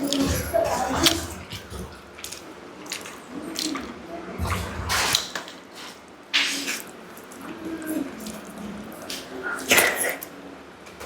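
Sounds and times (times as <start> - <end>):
wet eating sounds: 0.0 - 10.6.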